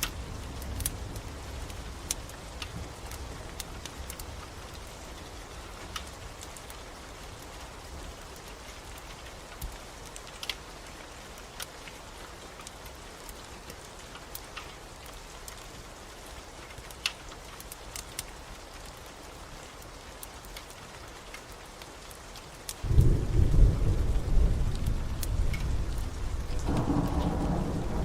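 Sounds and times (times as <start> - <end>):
rain hissing: 0.0 - 28.0
wood fire crackling and popping: 0.0 - 28.0
low rumble: 22.9 - 28.0.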